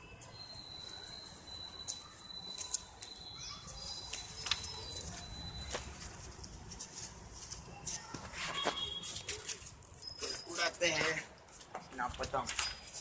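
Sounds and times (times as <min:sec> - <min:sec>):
steady high-pitched tone: 0:00.0 - 0:05.8.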